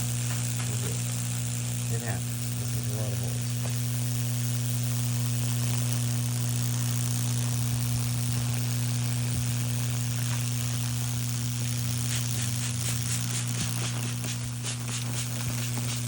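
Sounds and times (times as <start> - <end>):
current sizzling through wood: 0.0 - 16.0
faint crackles: 0.0 - 16.0
transformer humming: 0.0 - 16.0.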